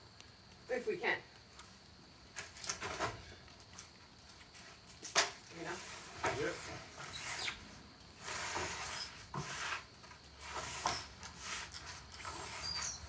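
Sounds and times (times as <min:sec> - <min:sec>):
wooden boards scraping: 0:05.1 - 0:13.0.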